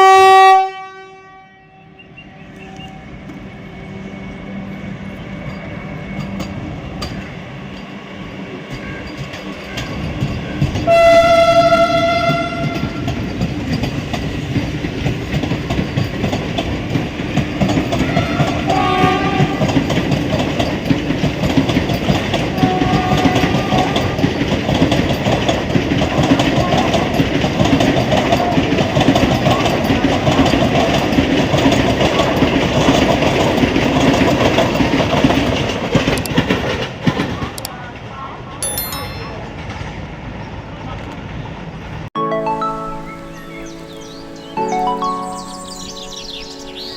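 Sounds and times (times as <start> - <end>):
train horn blast: 0.0 - 3.1, 10.4 - 13.2, 18.0 - 19.8, 22.6 - 24.2
train rushing past: 2.0 - 38.1, 38.9 - 46.9
wheel clatter on rails: 12.5 - 37.7.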